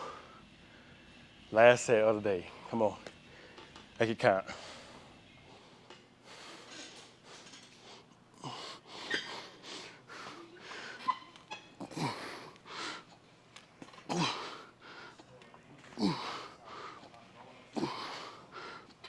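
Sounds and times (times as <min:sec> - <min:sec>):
man grunting: 0:14.1 - 0:14.6, 0:16.0 - 0:16.6, 0:17.8 - 0:18.4.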